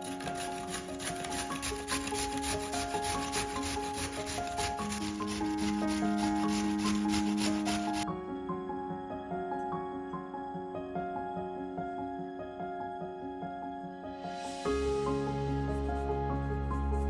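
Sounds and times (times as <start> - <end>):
food grated on metal grater: 0.0 - 8.0
slow background music: 0.0 - 17.0.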